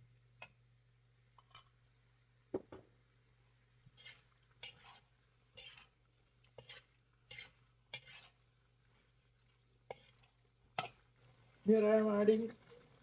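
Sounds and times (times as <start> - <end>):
spatula scraping a wok: 3.9 - 11.5.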